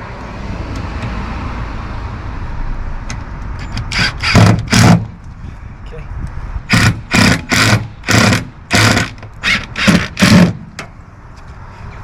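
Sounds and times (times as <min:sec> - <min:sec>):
power driver driving screws into metal: 0:03.6 - 0:05.1, 0:06.7 - 0:10.8.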